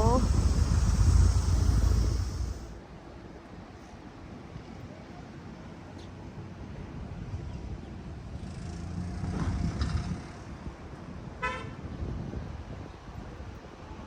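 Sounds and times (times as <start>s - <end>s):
vehicle passing close: 0.0s - 2.8s
road traffic rumbling: 0.0s - 2.9s, 8.1s - 10.8s.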